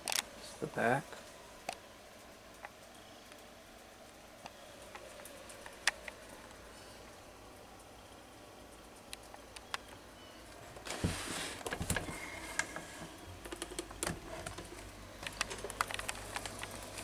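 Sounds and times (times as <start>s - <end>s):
rustling: 8.7s - 17.0s
fan handling clicks and knocks: 10.8s - 17.0s.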